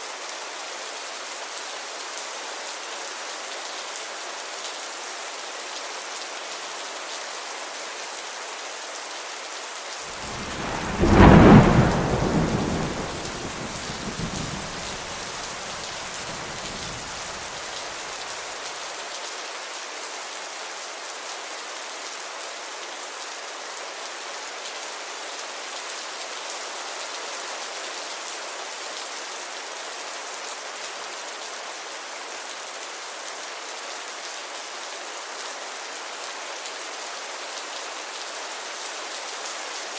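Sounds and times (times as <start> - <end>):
steady rainfall: 0.0 - 39.9
thunder rumbling: 10.1 - 17.6.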